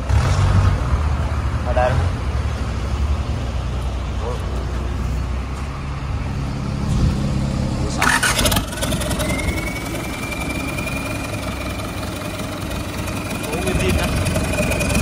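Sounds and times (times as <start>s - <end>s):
diesel engine running: 0.0s - 15.0s
high whine: 6.8s - 15.0s
engine clatter burst: 7.9s - 15.0s.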